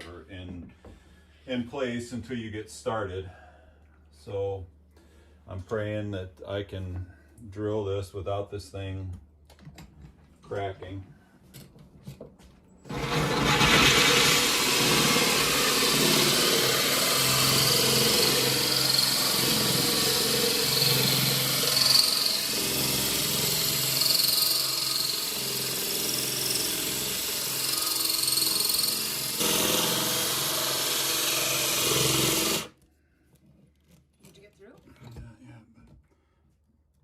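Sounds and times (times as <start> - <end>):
drill grinding into tile: 12.9 - 32.8.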